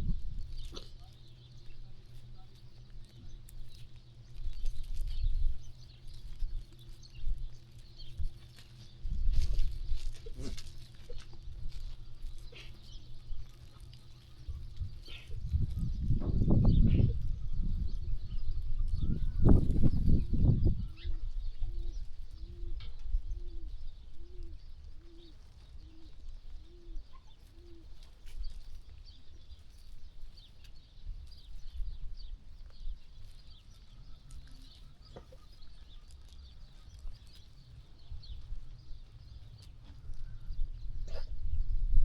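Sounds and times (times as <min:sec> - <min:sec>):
dove cooing: 0:20.8 - 0:28.6.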